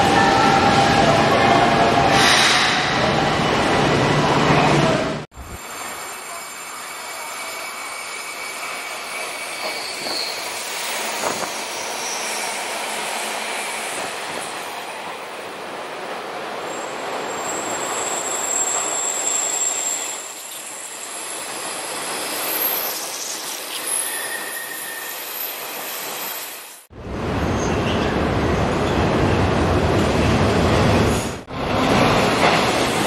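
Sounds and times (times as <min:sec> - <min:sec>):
wheel squeals: 0:06.0 - 0:12.8, 0:16.7 - 0:26.6
train wheels rumbling on rails: 0:27.0 - 0:33.0.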